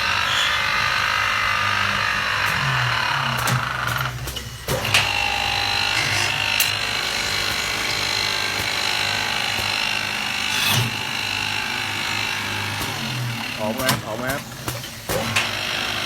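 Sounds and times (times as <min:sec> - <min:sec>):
lathe machine hum: 0:00.0 - 0:16.0
lathe cutting wood hiss: 0:03.0 - 0:14.8.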